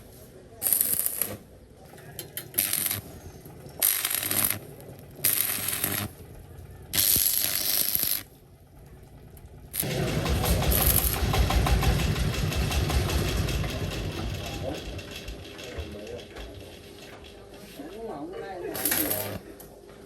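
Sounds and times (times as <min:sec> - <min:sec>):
harsh mechanical noise bursts: 0:00.0 - 0:01.6, 0:02.2 - 0:08.4, 0:09.6 - 0:15.6
four-wheeler engine running: 0:01.8 - 0:17.5.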